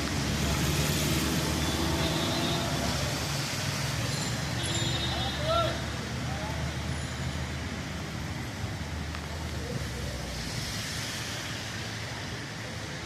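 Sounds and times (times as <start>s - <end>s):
steady rain falling: 0.0s - 4.6s, 7.5s - 13.0s
road traffic rumble: 0.0s - 13.0s.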